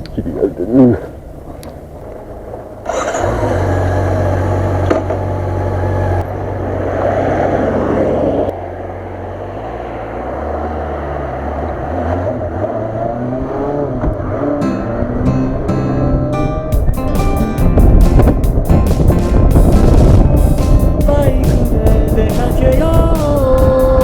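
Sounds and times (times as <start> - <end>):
motorcycle engine running: 2.8 - 6.8, 16.7 - 24.0.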